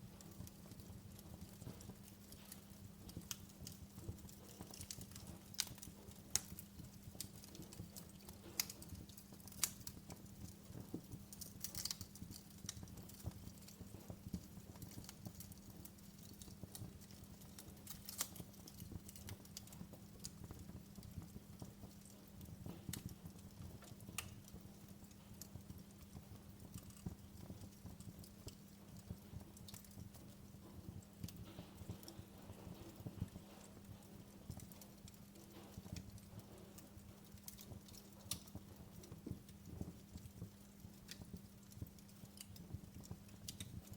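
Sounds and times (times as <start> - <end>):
sharp pops and snaps of fire: 0.0 - 43.9
wood fire crackling: 0.0 - 43.9.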